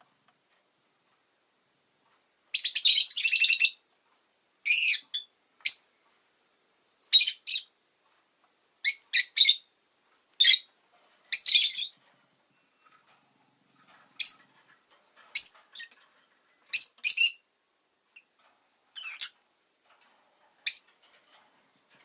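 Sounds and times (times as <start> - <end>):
lovebird chattering: 14.2 - 14.5, 16.7 - 17.4, 19.0 - 19.4.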